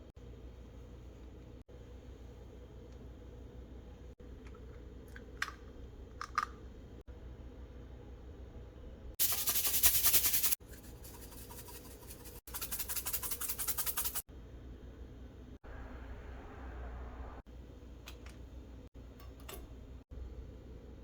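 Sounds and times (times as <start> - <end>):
low steady hum: 0.0 - 9.4, 10.6 - 21.0
loud rapid scratching: 9.2 - 14.2.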